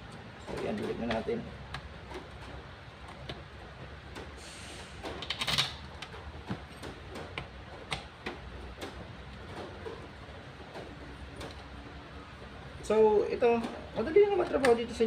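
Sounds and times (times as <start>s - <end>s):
tools clicking and knocking: 5.0s - 10.1s.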